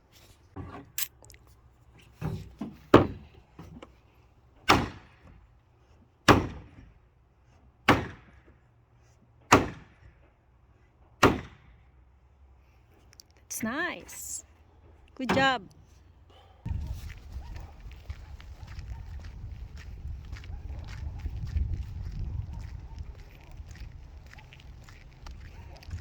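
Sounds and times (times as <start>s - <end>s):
hammer striking fence: 4.7s - 5.2s, 6.3s - 6.8s, 7.9s - 8.3s, 9.5s - 10.0s.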